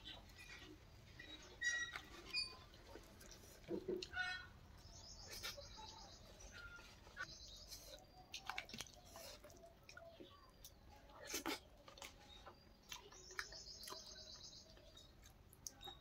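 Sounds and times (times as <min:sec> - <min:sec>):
birds chirping: 0:04.0 - 0:16.0
person chewing food: 0:07.1 - 0:16.0.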